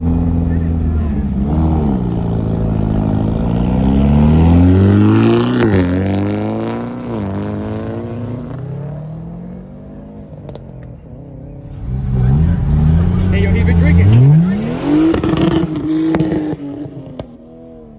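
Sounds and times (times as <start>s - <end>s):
car engine accelerating: 0.0s - 17.9s
another engine rising: 11.6s - 17.0s.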